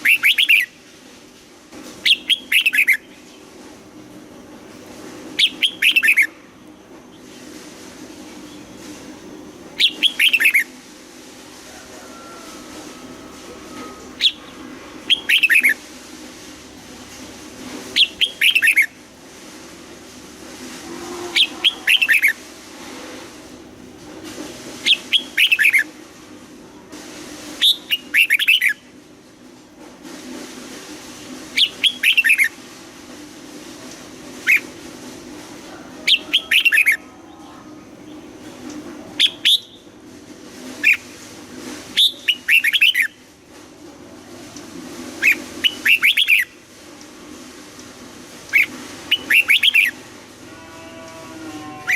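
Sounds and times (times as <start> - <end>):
bird singing whistled phrases: 0.0 - 0.7, 5.4 - 6.3, 9.8 - 10.7, 15.1 - 15.8, 39.2 - 39.8.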